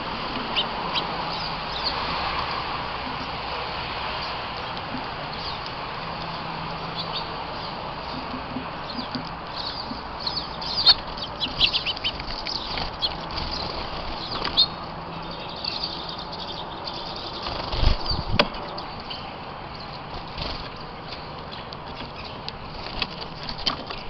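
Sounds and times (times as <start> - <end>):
small birds chirping: 0.0 - 24.0
wings fluttering: 4.1 - 15.0, 15.6 - 19.1, 19.8 - 21.3, 21.9 - 24.0.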